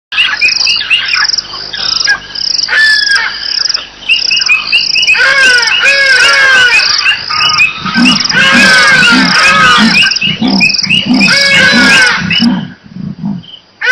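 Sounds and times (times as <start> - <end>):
crickets chirping: 0.2 - 13.8
bird calling: 0.2 - 13.9
leopard sawing call: 5.1 - 12.8.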